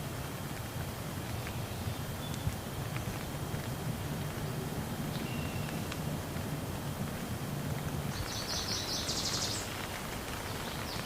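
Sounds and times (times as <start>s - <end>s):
raindrop ticks: 0.0s - 11.0s
steady rain falling: 0.0s - 11.0s.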